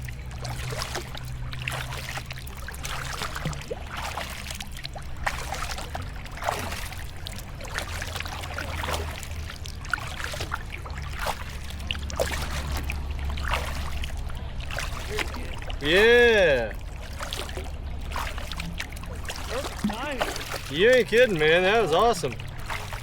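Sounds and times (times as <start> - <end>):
steady low rumble: 0.0 - 23.0
water splashing around a kayak: 0.0 - 23.0.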